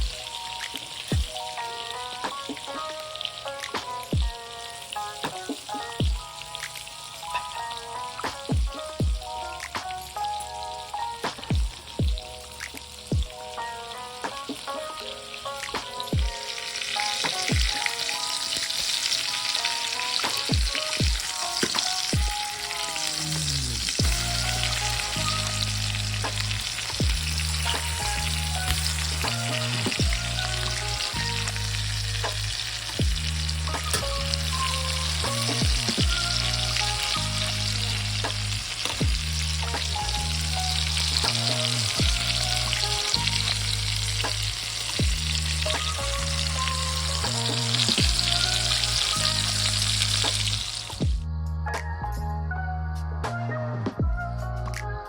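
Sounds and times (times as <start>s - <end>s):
chicken sizzling in frying pan: 0.0s - 51.2s
background music with bass and drums: 0.0s - 55.0s.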